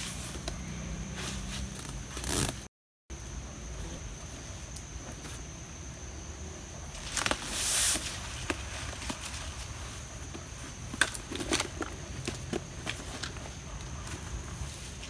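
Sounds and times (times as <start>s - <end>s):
faint hiss: 6.9s - 10.2s.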